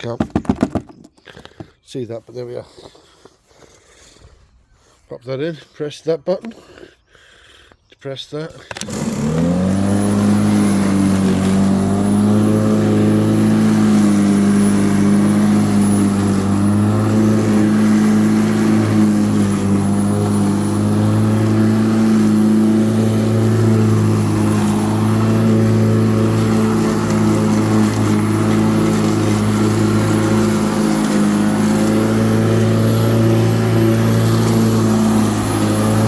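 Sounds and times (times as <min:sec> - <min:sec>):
electric lawnmower running: 0:08.7 - 0:36.0.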